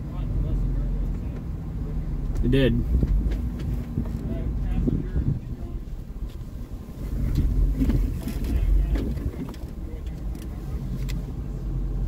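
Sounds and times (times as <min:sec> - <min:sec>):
car engine running at low speed: 0:00.0 - 0:12.0
sharp clicks and knocks: 0:02.3 - 0:04.3, 0:07.2 - 0:11.2.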